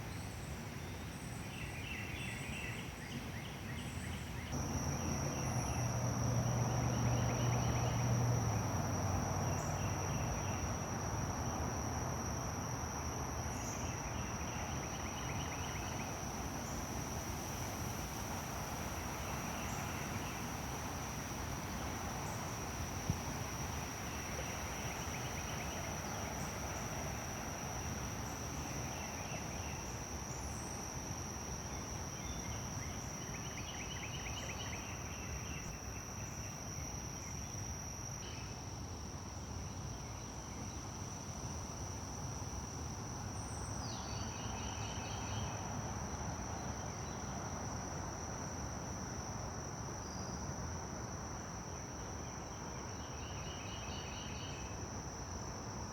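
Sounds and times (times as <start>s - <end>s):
background hiss: 0.0s - 55.9s
rapid insect chirping: 0.0s - 55.9s
insects buzzing: 4.4s - 50.5s.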